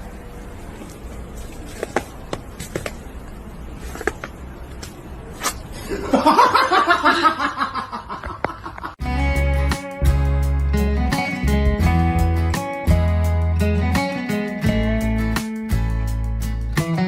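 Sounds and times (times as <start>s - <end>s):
guitar music: 9.0s - 17.0s.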